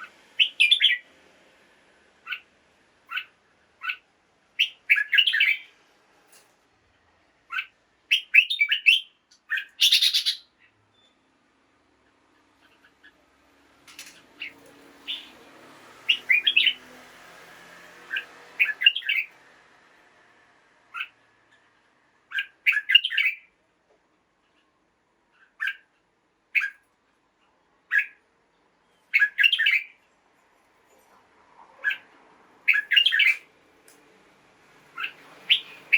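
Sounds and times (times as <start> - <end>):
bulbul chirping song: 0.0 - 1.1, 3.1 - 4.0, 4.6 - 5.7, 7.5 - 11.2, 14.4 - 15.4, 16.1 - 16.8, 18.1 - 19.3, 20.9 - 21.7, 22.3 - 23.6, 29.1 - 30.0, 32.7 - 33.5, 35.0 - 35.9.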